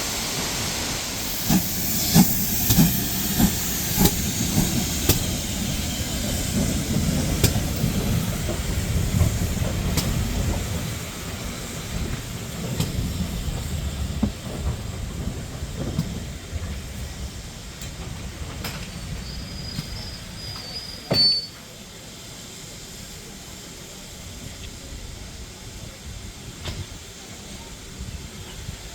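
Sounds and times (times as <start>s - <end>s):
train rumbling along track: 0.0s - 28.9s
wheels clicking over rail joints: 1.5s - 21.8s.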